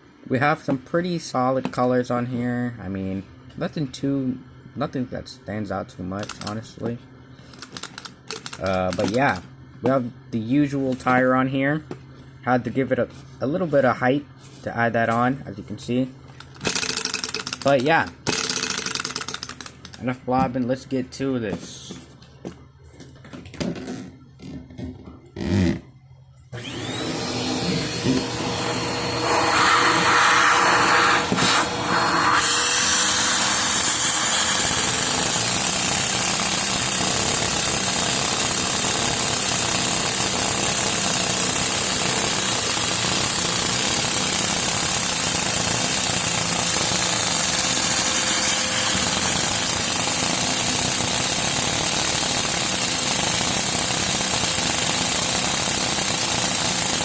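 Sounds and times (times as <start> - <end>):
vacuum supply whir: 5.5 - 57.0
toy engine plastic rattle: 16.6 - 19.9.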